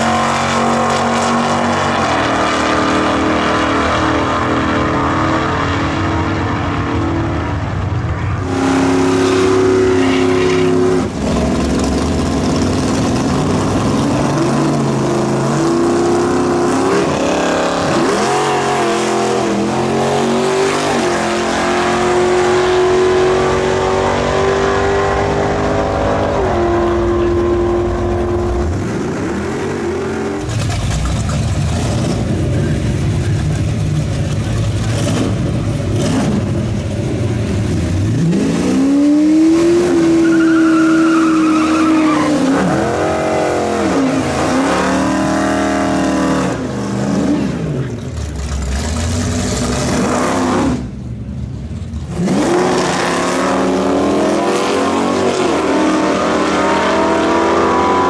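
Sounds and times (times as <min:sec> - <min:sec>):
drag car engines at full throttle: 0:00.0 - 0:58.0
cars idling with low rumble: 0:30.4 - 0:38.1, 0:50.9 - 0:52.1
engine revving up: 0:52.1 - 0:58.0.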